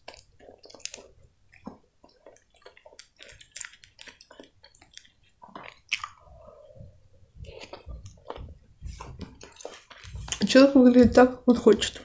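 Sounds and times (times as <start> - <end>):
chewing mouth clicks and smacks: 0.0 - 6.2.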